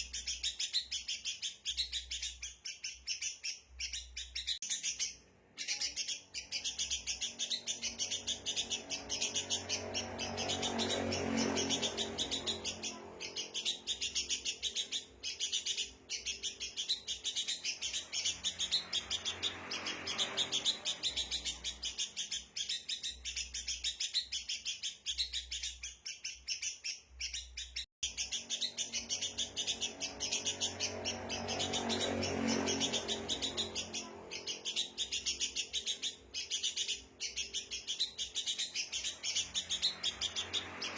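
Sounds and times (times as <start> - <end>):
birds giving scolding calls: 0.0 - 40.9.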